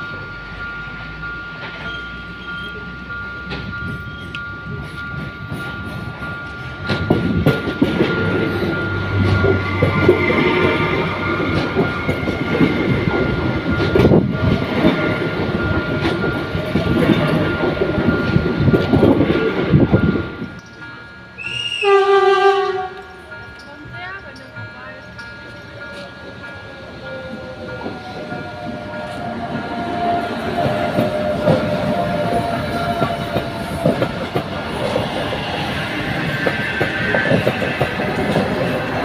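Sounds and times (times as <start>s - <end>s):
electric train passing: 0.0s - 39.0s
wheels clacking over rail joints: 3.4s - 20.9s, 27.2s - 39.0s.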